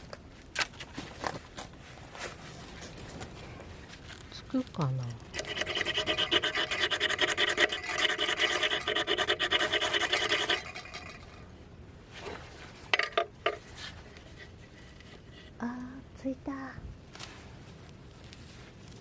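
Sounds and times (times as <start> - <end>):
fire-starter rod scraping: 5.3 - 11.4.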